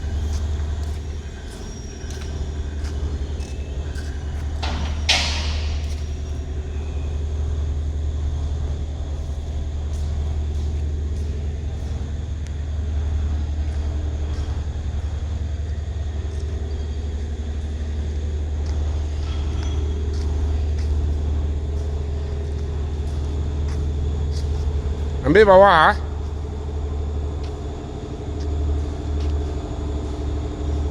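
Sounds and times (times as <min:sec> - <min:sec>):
machinery low hum: 0:00.0 - 0:30.9.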